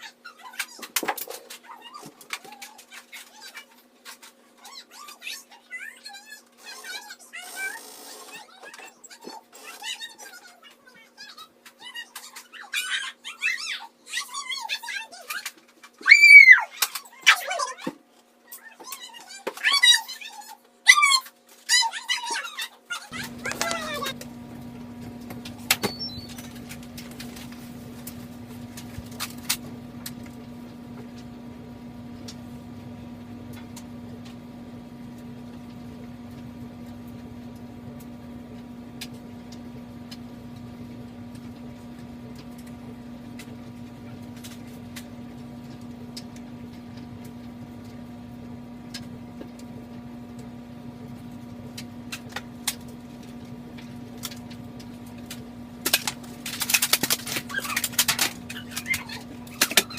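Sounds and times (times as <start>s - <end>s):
machine hum: 23.1s - 59.9s.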